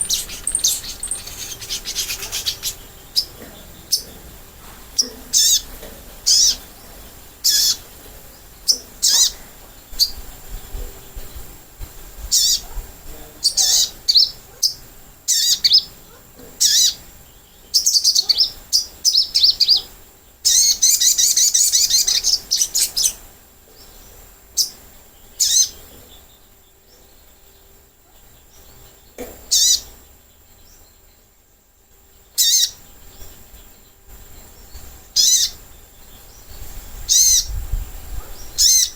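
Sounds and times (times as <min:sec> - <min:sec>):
bird calling high chips: 0:00.0 - 0:04.2, 0:17.8 - 0:23.2, 0:32.4 - 0:32.8, 0:35.2 - 0:35.6
rapid bird chattering calls: 0:00.0 - 0:11.4, 0:12.3 - 0:12.7, 0:13.4 - 0:26.3, 0:28.5 - 0:30.2, 0:32.4 - 0:33.7, 0:34.6 - 0:37.6, 0:38.3 - 0:38.9.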